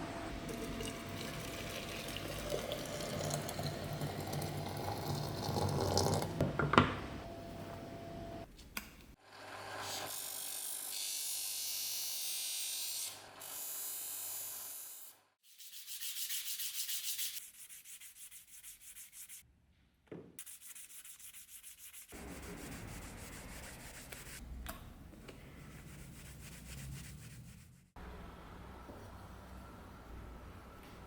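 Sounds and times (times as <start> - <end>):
hand sanding strokes: 15.4 - 19.4, 20.4 - 24.4, 25.6 - 28.0.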